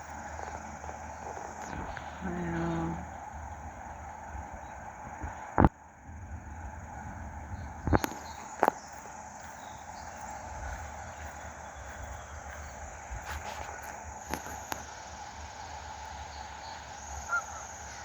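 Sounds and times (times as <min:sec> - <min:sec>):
car driving slowly: 0:00.0 - 0:18.0
insects chirring: 0:00.0 - 0:18.0
sharp clicks: 0:07.9 - 0:08.8.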